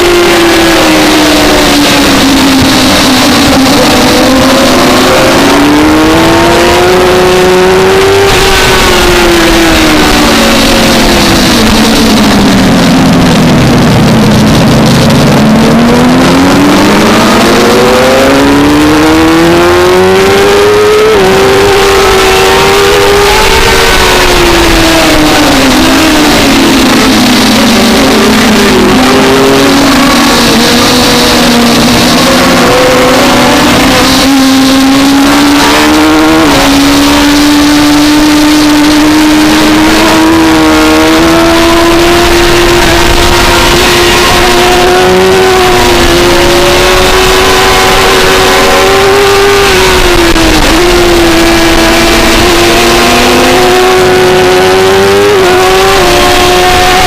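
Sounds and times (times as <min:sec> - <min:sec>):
motorcycle engine at racing revs: 0:00.0 - 0:57.0.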